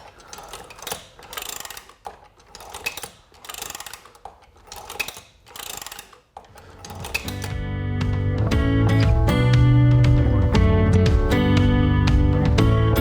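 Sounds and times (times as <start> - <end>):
reloading press clacking: 0.0 - 8.3
guitar music: 7.2 - 13.0.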